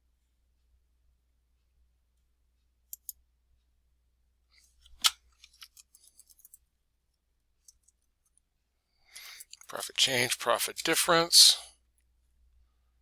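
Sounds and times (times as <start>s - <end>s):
computer mouse clicking: 2.9s - 3.2s.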